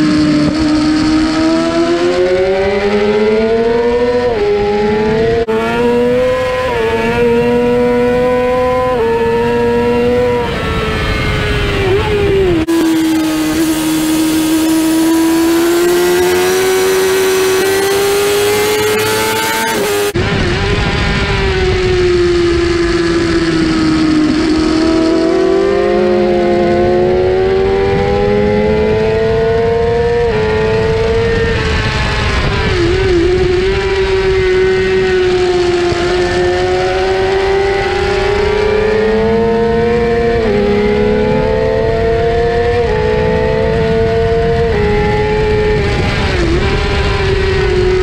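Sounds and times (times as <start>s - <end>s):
motorcycle engine at high revs: 0.0s - 48.0s
wind rush: 0.0s - 48.0s.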